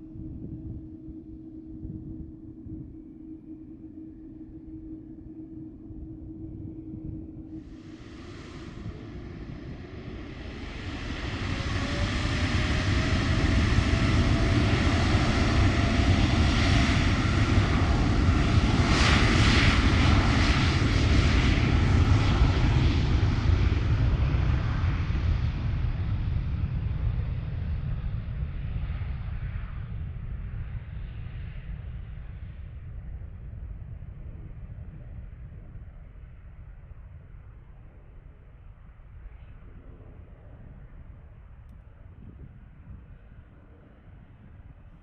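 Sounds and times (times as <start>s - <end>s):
jet airliner taking off: 7.5s - 29.9s.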